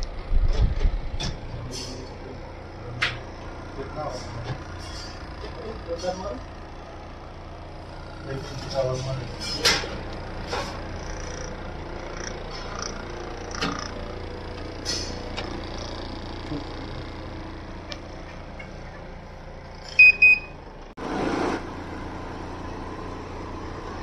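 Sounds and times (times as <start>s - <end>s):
air conditioner humming: 0.0s - 24.0s
short high beeps: 20.0s - 20.5s.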